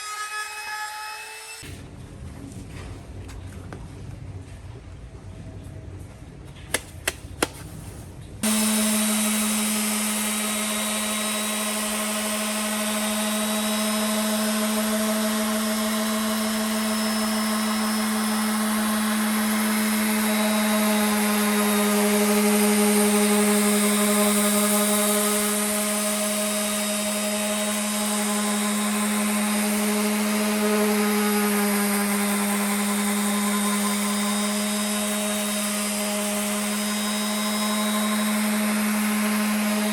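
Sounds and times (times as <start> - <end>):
electric power tool running: 8.4 - 39.9.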